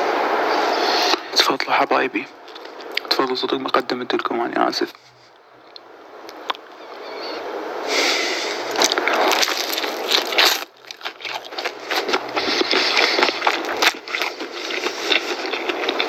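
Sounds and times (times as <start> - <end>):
crunching fried chicken: 8.5 - 16.0.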